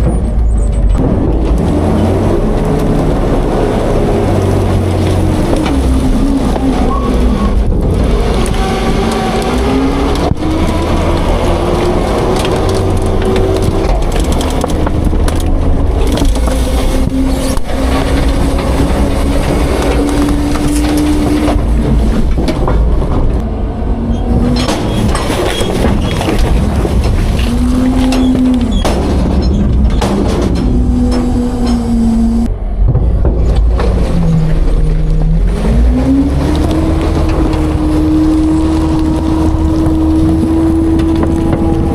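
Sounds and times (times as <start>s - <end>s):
garbage truck engine drone: 0.0s - 41.9s
knocks of trash being crushed: 4.8s - 23.5s, 24.3s - 31.8s.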